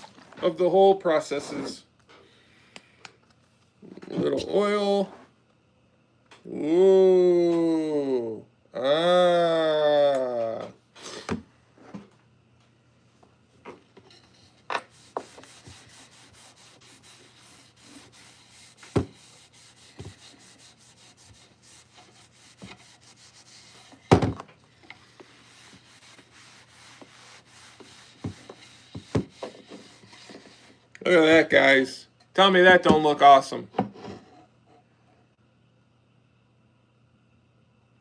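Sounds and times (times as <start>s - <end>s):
hand rubbing oil into wood: 14.8s - 24.0s, 24.9s - 30.8s.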